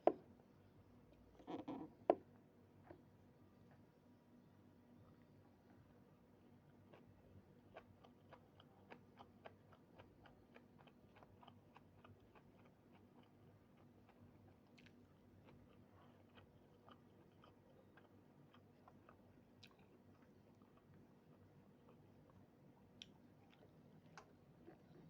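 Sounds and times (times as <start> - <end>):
close-up chewing: 6.7 - 25.0.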